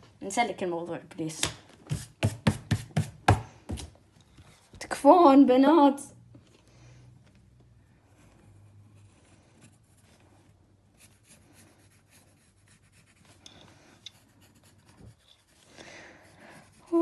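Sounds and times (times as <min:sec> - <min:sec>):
pencil scratching on paper: 0:08.0 - 0:17.0.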